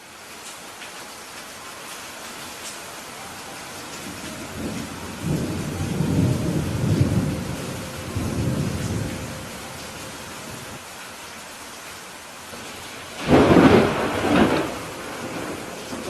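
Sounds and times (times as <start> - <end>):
rain hiss: 0.0 - 16.0
thunder rumbling: 3.7 - 10.8, 12.6 - 16.0.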